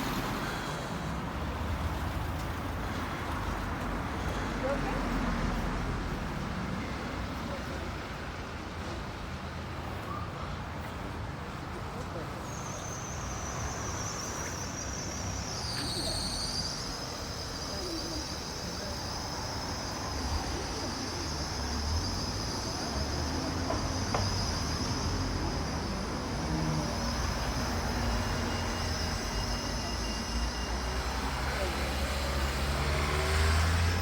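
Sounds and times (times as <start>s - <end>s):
road traffic rumble: 0.0s - 34.0s
high-pitched whine: 13.0s - 34.0s.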